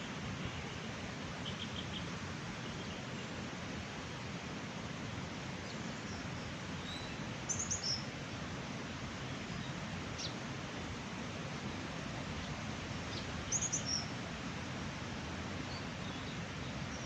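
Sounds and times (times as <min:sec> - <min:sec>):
small birds chirping: 0:05.6 - 0:08.1, 0:12.4 - 0:14.1.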